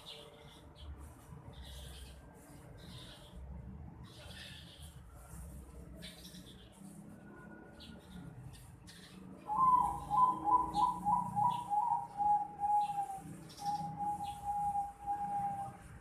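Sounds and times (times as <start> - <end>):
dove cooing: 9.4 - 15.9.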